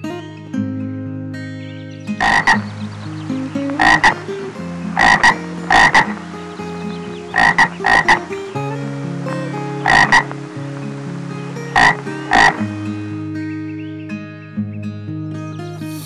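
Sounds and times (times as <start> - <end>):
frog croaking: 2.2 - 8.5, 9.5 - 12.8.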